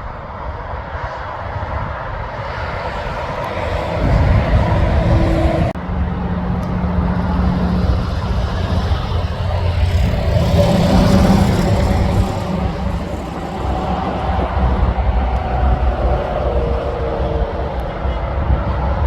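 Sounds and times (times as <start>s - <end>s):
diesel truck engine running: 2.6s - 17.7s.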